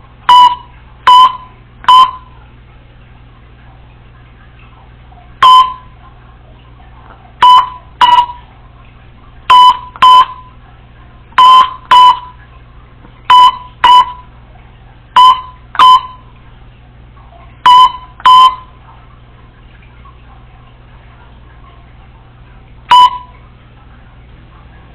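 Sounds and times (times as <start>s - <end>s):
parrot imitating phone double beeps: 0.3s - 2.2s, 5.4s - 5.8s, 7.4s - 8.4s, 9.5s - 10.5s, 11.4s - 12.3s, 13.3s - 14.2s, 15.2s - 16.2s, 17.6s - 18.6s, 22.9s - 23.3s.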